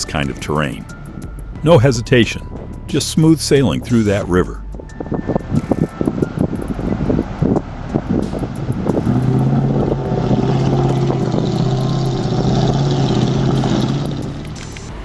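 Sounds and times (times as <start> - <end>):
heavy truck engine running: 4.8 - 15.0.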